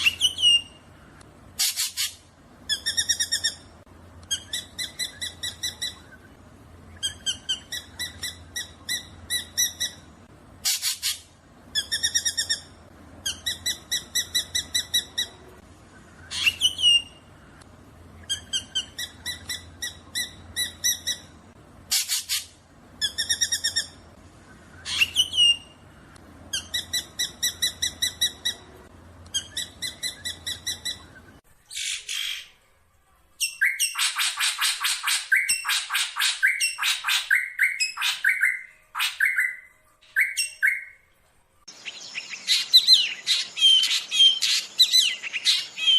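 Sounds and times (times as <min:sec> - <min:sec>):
harsh bird calls: 0:00.0 - 0:32.5, 0:41.7 - 0:45.9.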